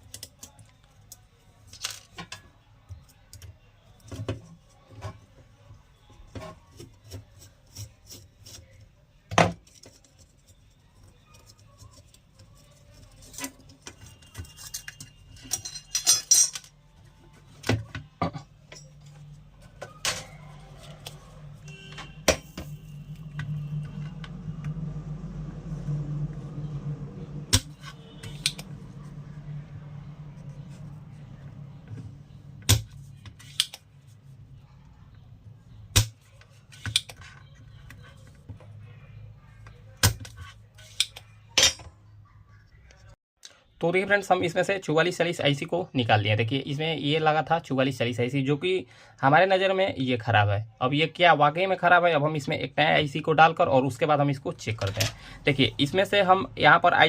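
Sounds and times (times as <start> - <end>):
low steady hum: 10.4 - 36.4
light metallic clatter of tools: 14.3 - 16.7.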